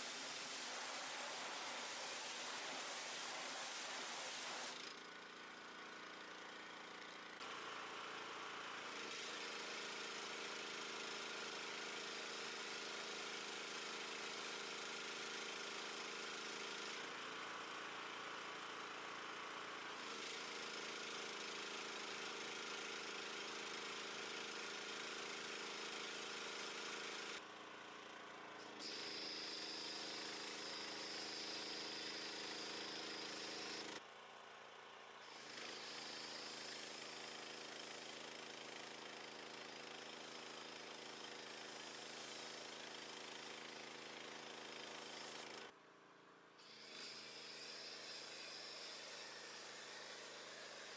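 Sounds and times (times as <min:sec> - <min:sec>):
pressure washer spraying: 0:00.0 - 0:04.7.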